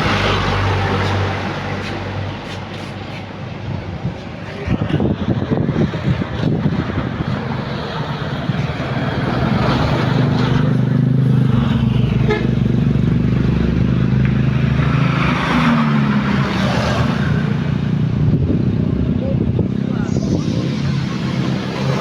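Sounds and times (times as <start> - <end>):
heavy truck engine running: 0.0 - 14.9.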